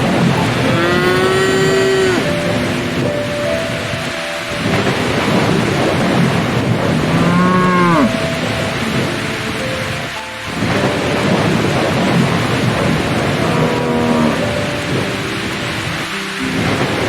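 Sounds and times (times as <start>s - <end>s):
rain rushing: 0.0s - 17.0s
thunder rumbling: 0.0s - 17.0s
cow mooing: 7.1s - 8.2s, 13.4s - 14.5s.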